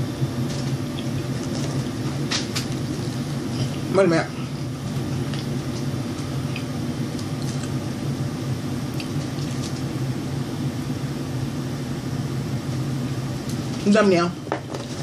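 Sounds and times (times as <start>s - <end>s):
steady low hum: 0.0s - 15.0s
person chewing: 0.5s - 7.9s, 8.9s - 9.9s.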